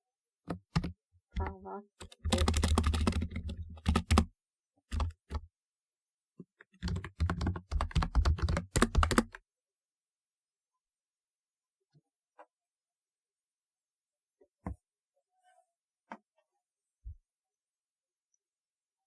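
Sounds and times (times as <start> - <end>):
typewriter-style keyboard clicks: 0.8 - 4.3, 6.8 - 9.4.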